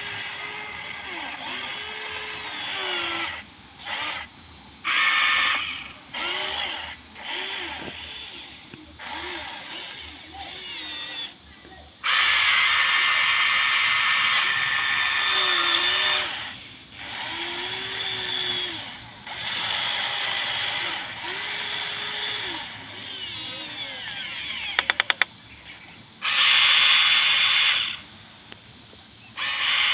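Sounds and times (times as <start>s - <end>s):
small electric motors whirring: 0.0s - 25.3s, 26.2s - 28.6s, 29.4s - 29.9s
quick clicks: 24.7s - 25.4s.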